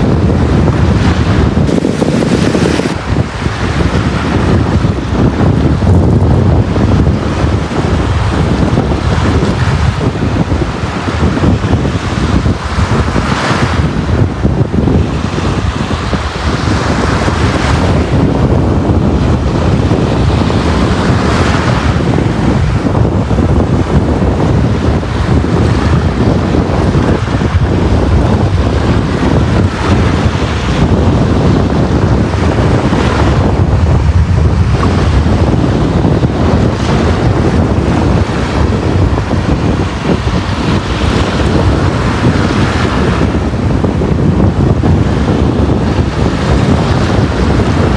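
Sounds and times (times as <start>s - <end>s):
waves breaking on beach: 0.0s - 33.5s, 34.6s - 47.9s
wind rumble on microphone: 0.0s - 47.9s.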